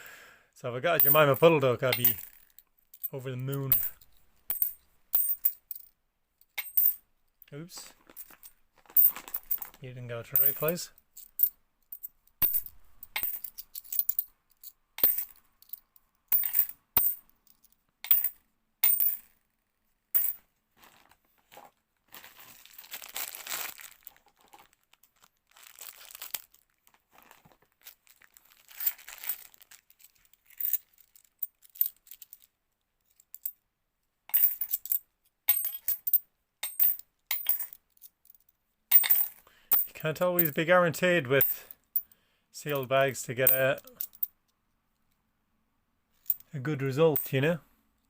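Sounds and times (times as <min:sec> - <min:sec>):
coins clinking: 0:01.0 - 0:05.8, 0:06.6 - 0:07.0, 0:10.3 - 0:14.3, 0:15.0 - 0:17.2, 0:18.1 - 0:19.3, 0:20.2 - 0:20.4, 0:34.3 - 0:37.8, 0:38.9 - 0:40.6
coins shuffled and slid: 0:01.0 - 0:05.8, 0:08.0 - 0:19.3, 0:20.2 - 0:20.4, 0:28.3 - 0:32.5, 0:34.3 - 0:40.6.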